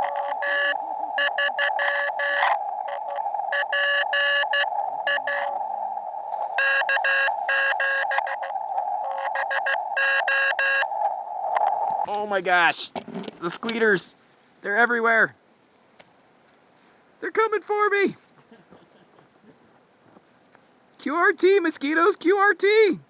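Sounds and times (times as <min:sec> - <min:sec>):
morse code beeps: 0:00.0 - 0:05.6, 0:06.6 - 0:10.9
radio receiver hiss: 0:00.0 - 0:14.0.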